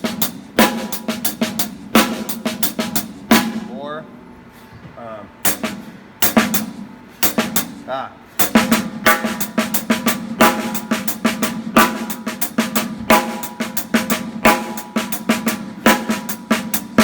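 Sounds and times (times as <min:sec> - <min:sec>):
snare drum backbeats: 0:00.0 - 0:03.9, 0:05.4 - 0:17.0
cymbals ringing: 0:05.4 - 0:17.0
bass drum: 0:05.5 - 0:17.0.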